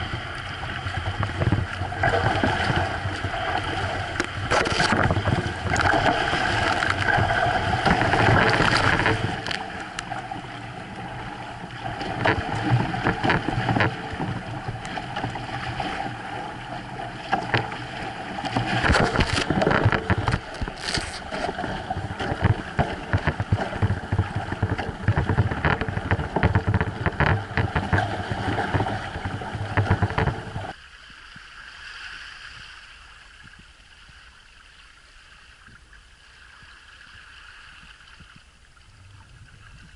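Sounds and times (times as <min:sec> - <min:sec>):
water slaps and spray: 0:00.0 - 0:10.2, 0:17.2 - 0:30.8
water rushing along hull: 0:00.0 - 0:39.9.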